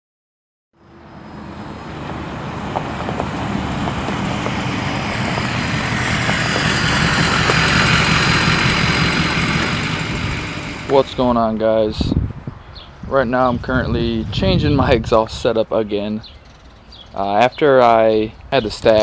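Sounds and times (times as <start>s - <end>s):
diesel truck engine running: 0.8s - 12.2s.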